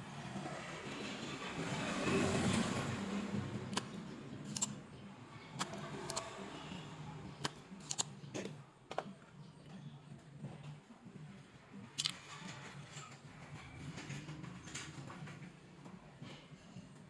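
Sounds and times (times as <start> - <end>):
small tools clicking and tapping: 3.7 - 4.8, 7.4 - 9.2, 12.0 - 13.2.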